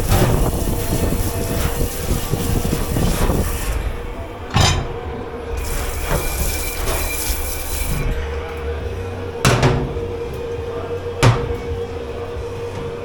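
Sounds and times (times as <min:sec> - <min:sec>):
machine hum and hiss: 0:00.0 - 0:13.0
crockery clanking: 0:04.4 - 0:07.1, 0:09.4 - 0:13.0.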